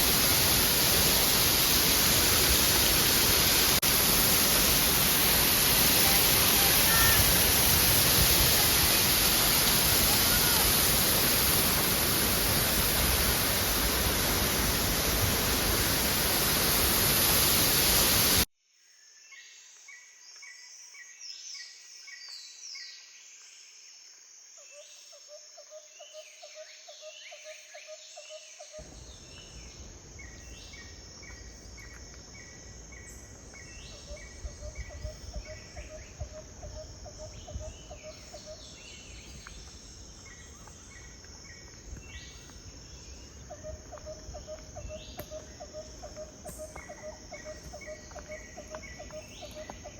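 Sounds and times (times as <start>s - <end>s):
waterfall rushing: 0.0s - 18.5s.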